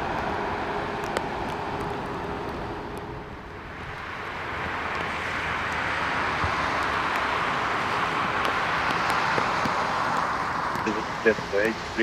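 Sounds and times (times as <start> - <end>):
jet airliner engines whining: 10.3 - 12.0.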